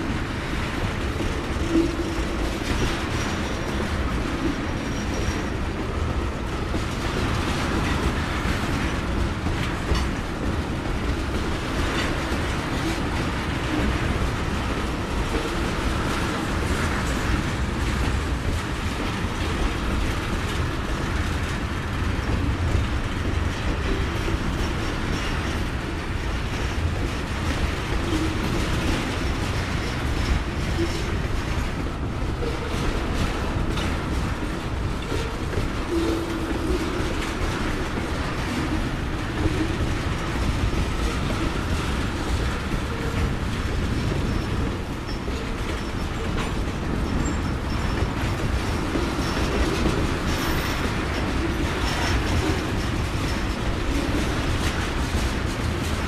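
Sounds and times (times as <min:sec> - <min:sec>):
steel wheels rumbling on rail: 0:00.0 - 0:56.0
wheels clickety-clack: 0:00.0 - 0:56.0
wheel squeals: 0:41.6 - 0:52.8.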